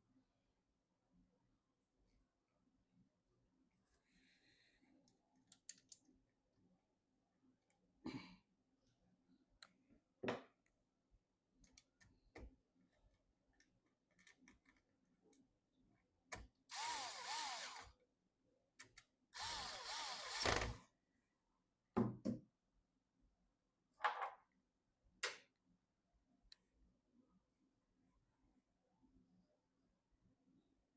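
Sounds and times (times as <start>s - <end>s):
electric screwdriver running: 16.7s - 17.9s, 19.4s - 20.8s.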